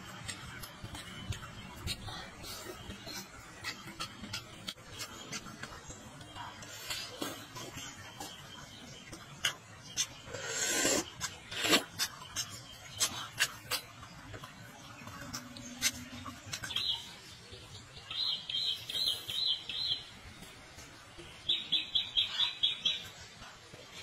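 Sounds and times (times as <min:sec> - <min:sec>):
mouth clicks and smacks eating: 0:00.0 - 0:17.2
small bird chirping: 0:00.8 - 0:20.1, 0:21.3 - 0:23.2.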